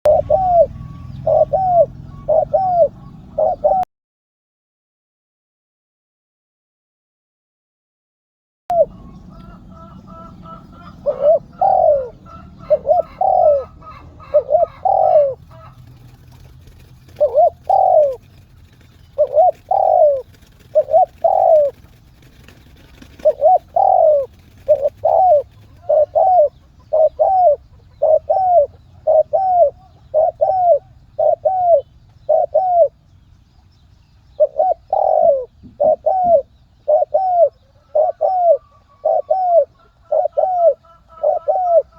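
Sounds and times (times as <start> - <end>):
dove cooing: 0.0 - 3.9, 8.7 - 33.0, 34.4 - 41.9.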